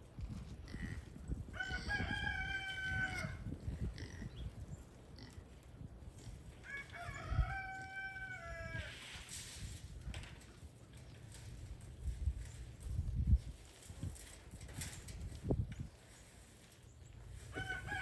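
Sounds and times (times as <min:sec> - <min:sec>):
rooster crowing: 0:01.6 - 0:03.5, 0:06.6 - 0:09.0, 0:17.5 - 0:18.0.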